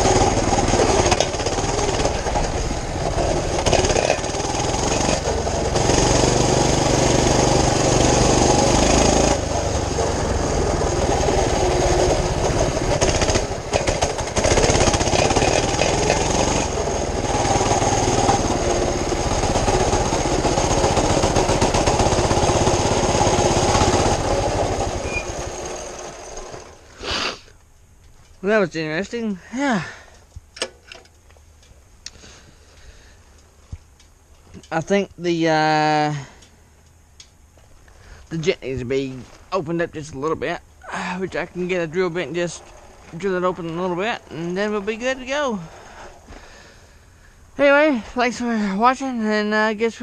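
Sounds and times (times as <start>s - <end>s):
mini bike engine running: 0.0s - 26.8s.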